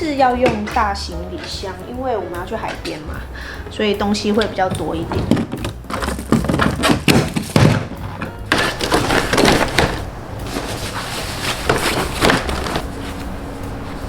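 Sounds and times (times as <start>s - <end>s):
belongings knocking in suitcase: 0.1s - 3.2s, 4.0s - 12.9s
clothes rustling: 4.4s - 14.0s.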